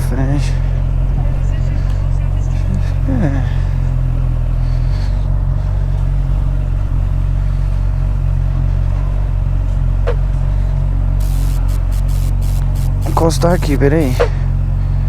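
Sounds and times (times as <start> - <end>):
motorcycle engine running: 11.2 - 14.3
short rising chirp: 11.2 - 14.3.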